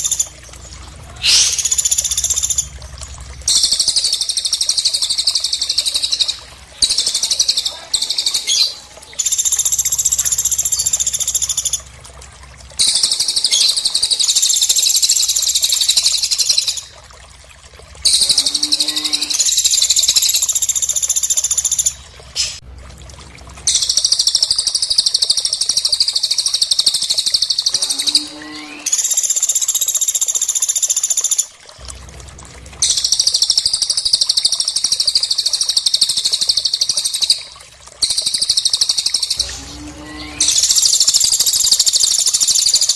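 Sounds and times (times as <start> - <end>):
low gliding bird call: 1.2 - 2.3, 27.4 - 29.1
birds trilling chatter: 3.8 - 9.4.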